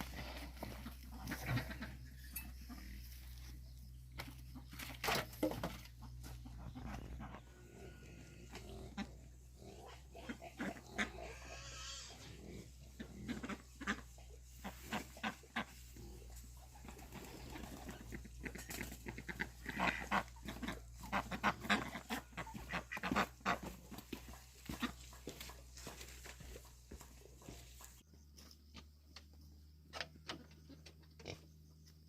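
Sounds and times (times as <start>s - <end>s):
pigs grunting: 0.0s - 3.4s, 6.4s - 27.6s.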